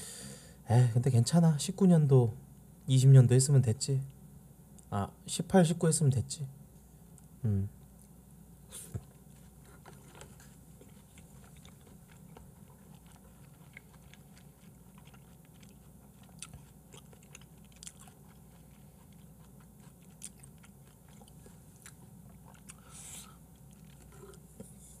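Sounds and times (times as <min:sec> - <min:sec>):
low room hum: 0:00.0 - 0:25.0
quiet chewing of food: 0:07.1 - 0:25.0.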